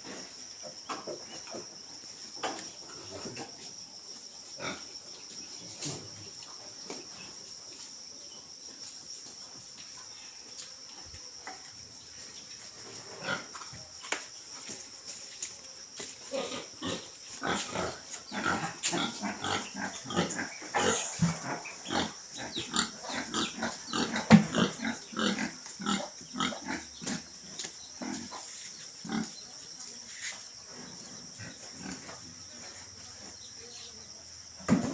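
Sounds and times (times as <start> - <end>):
steady high-pitched hiss: 0.0 - 34.9
pigs grunting: 4.6 - 5.0, 12.9 - 13.8, 16.3 - 29.4, 30.9 - 32.7.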